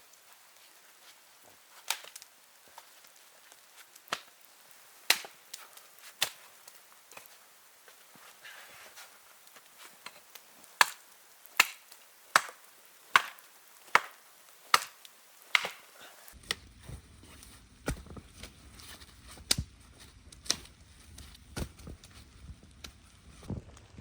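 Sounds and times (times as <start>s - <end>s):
wood being chopped: 1.8s - 2.2s, 5.1s - 5.6s, 6.2s - 6.4s, 10.8s - 11.0s, 11.6s - 16.6s.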